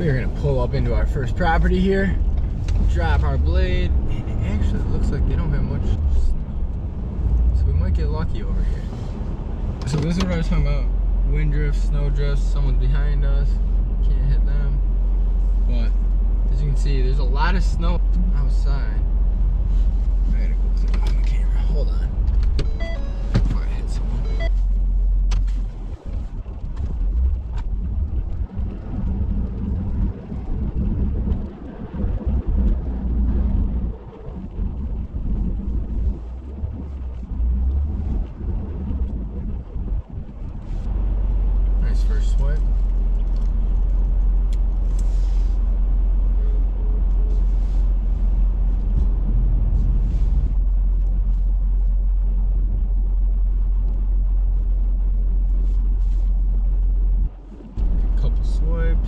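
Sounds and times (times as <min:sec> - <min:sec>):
truck engine rumbling: 0:00.0 - 0:59.0
faint scraping: 0:44.8 - 0:45.8, 0:47.2 - 0:50.6.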